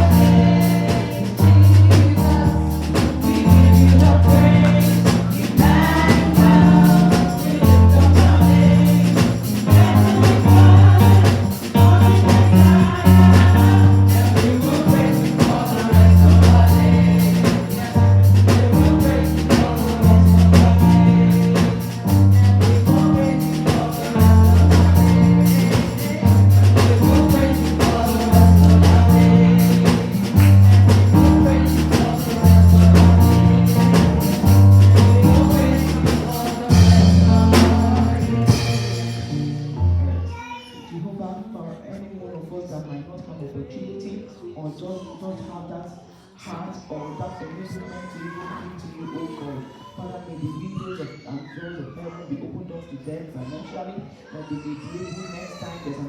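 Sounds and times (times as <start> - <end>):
heavy repeating bass line: 0.0 - 39.7
steady percussion: 0.0 - 40.0
gospel singing: 0.0 - 40.4.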